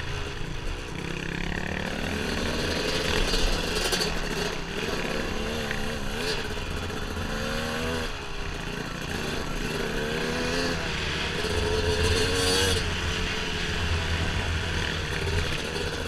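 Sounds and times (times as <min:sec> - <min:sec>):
steady rushing noise: 0:00.0 - 0:16.0
dirt bike engine revving: 0:00.9 - 0:16.0.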